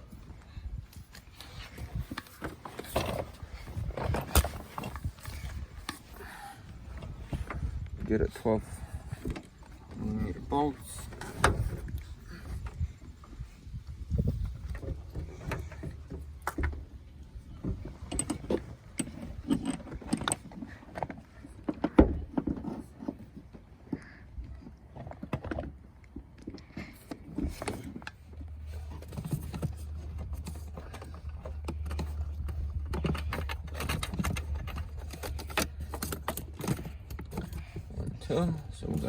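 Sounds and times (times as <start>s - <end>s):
metal tools and bolts clinking: 28.6s - 39.0s.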